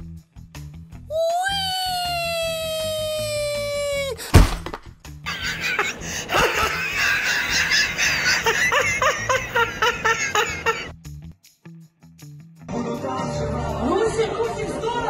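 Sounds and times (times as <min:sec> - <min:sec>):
held high tone: 0:01.1 - 0:04.2
loud crash: 0:04.3 - 0:04.9
crowd laughing: 0:05.2 - 0:10.9.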